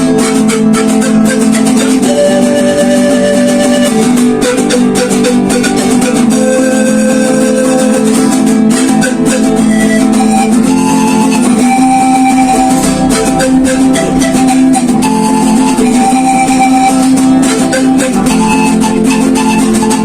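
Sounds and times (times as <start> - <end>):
plucked guitar music: 0.0 - 20.0.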